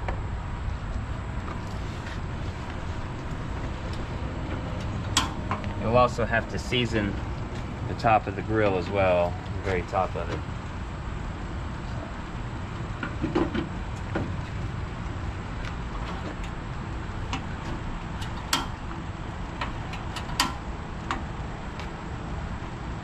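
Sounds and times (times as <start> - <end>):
low background rumble: 0.0 - 23.0
light clicks and knocks: 1.5 - 5.8, 17.3 - 21.2.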